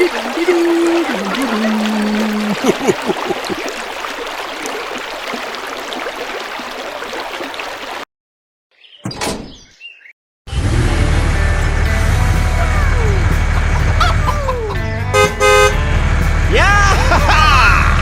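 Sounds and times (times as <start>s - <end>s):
music: 10.5s - 18.0s.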